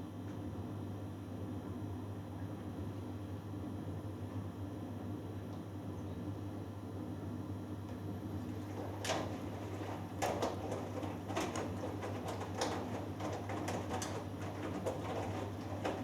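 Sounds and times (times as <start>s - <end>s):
washing machine hum: 0.1s - 16.0s
drum tumbling wet laundry: 8.0s - 16.0s.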